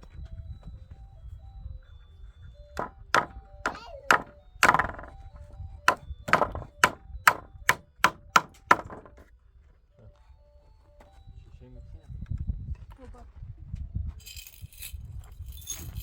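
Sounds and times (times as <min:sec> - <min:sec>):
tool striking wood: 0:02.8 - 0:05.2, 0:05.9 - 0:09.2.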